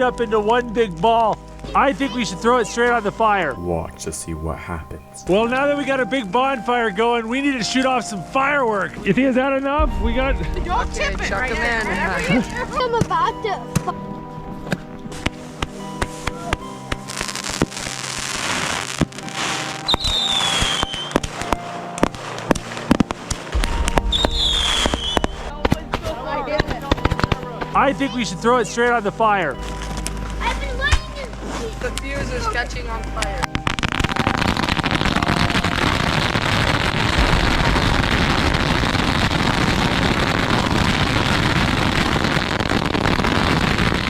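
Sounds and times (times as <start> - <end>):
bonfire hissing: 0.0 - 44.0
firecrackers popping: 0.0 - 44.0
falling whistle: 19.5 - 21.2, 23.5 - 26.3.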